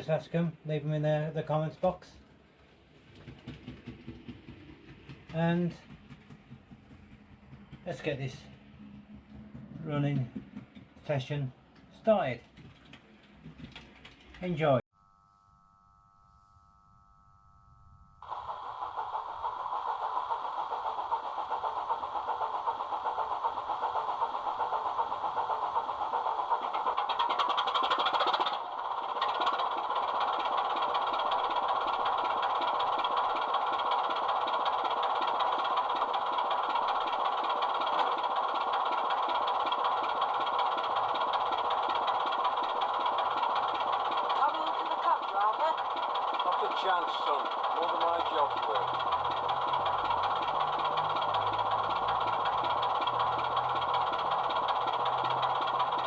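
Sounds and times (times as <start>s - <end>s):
model locomotive engine sound: 0.0s - 14.8s, 18.2s - 56.0s.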